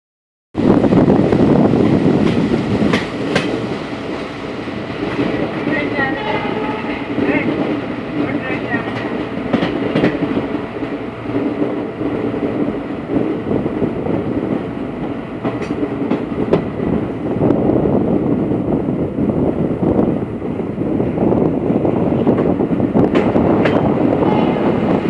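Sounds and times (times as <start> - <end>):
train wheels rumbling on rails: 0.6 - 25.0.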